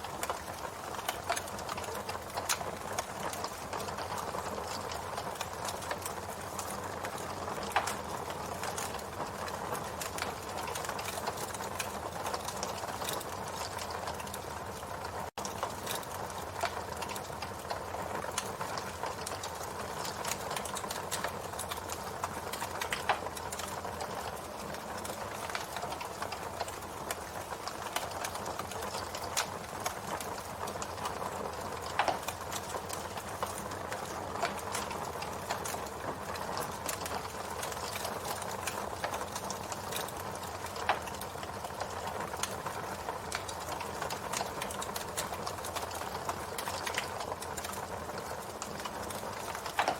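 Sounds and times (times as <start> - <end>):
campfire crackling and popping: 0.0 - 49.9.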